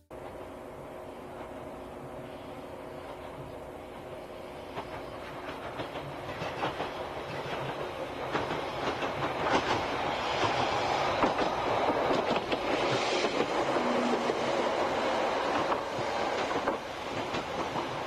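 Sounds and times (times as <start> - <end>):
diesel railcar engine: 0.0 - 18.0
wheels clicking over rail joints: 4.7 - 14.4.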